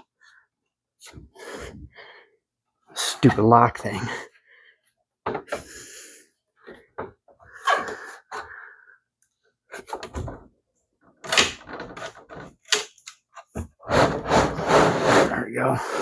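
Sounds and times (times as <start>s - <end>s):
plastic parts knocking and scraping: 9.8s - 10.5s, 11.2s - 15.4s.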